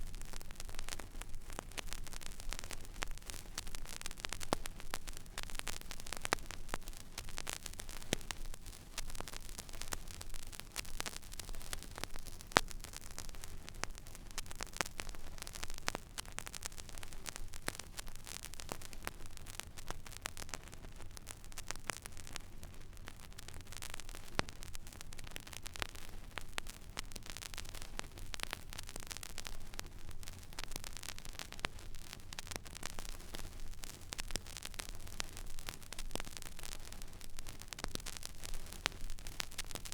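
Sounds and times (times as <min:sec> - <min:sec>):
vinyl surface hiss and crackles: 0:00.0 - 0:39.9.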